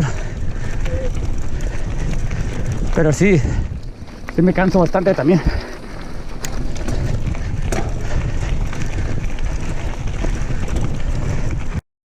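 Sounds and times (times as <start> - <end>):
bike clicks and rattles: 0.0 - 11.8
bike tyres rolling on dirt: 0.0 - 11.8
wind buffeting microphone: 0.0 - 11.8.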